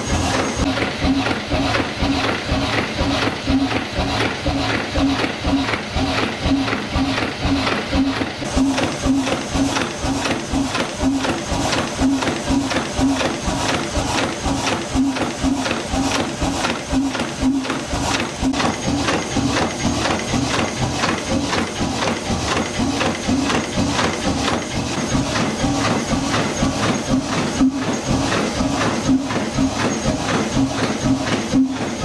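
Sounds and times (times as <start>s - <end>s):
marine engine knocking: 0.0s - 32.0s.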